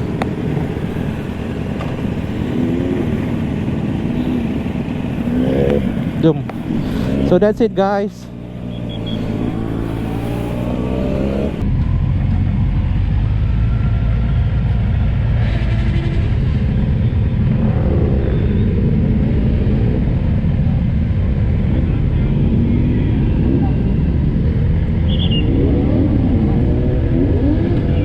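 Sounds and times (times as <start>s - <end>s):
low rumble of engines: 0.0s - 28.0s
motorcycle engine revving: 0.0s - 28.0s.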